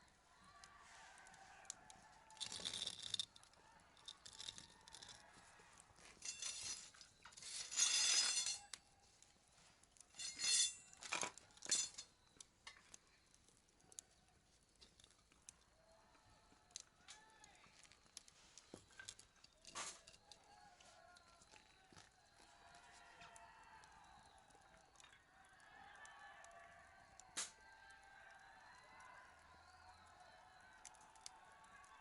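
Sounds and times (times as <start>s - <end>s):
hard objects clattering: 2.4s - 5.2s.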